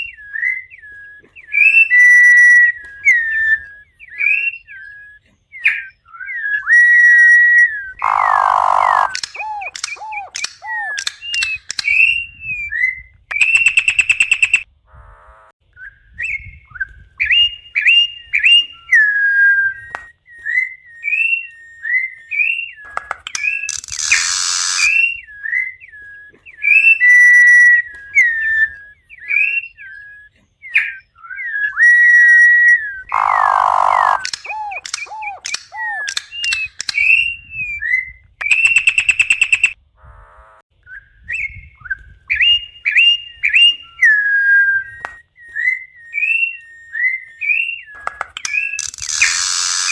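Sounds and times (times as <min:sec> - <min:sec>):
bird singing whistled notes: 0:00.0 - 0:14.7, 0:15.7 - 0:39.8, 0:40.8 - 0:49.9
harsh rasping bird note: 0:23.7 - 0:25.1.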